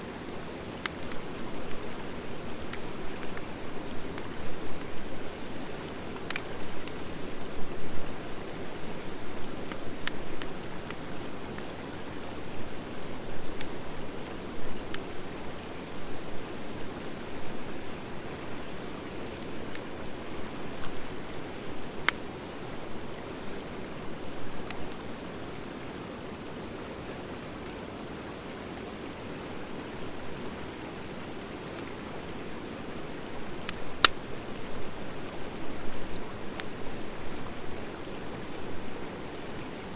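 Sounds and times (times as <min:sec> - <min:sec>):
fire crackles and pops: 0:00.4 - 0:07.1, 0:09.4 - 0:12.3, 0:18.6 - 0:25.3, 0:33.3 - 0:35.0, 0:35.6 - 0:38.1
wood fire hissing: 0:32.8 - 0:39.6.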